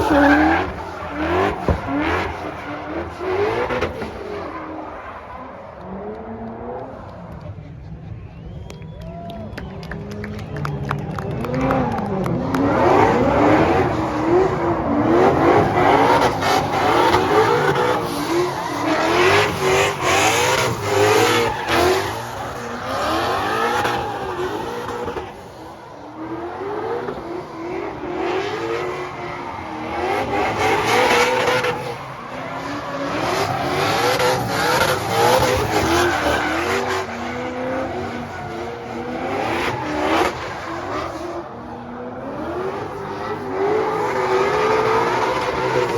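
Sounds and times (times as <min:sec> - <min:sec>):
car engine revving hard: 0:00.0 - 0:04.4, 0:11.4 - 0:25.5, 0:26.2 - 0:45.9
tyres squealing and skidding: 0:00.0 - 0:09.2, 0:11.3 - 0:45.9.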